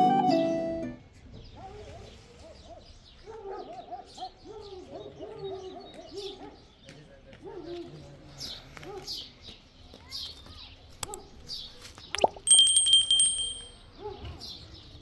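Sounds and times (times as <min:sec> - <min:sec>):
thin high chirps: 0:12.2 - 0:13.8.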